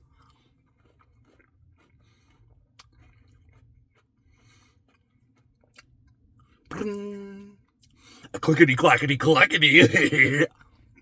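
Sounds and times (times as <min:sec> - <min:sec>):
person chewing ice cream: 0:00.0 - 0:05.9.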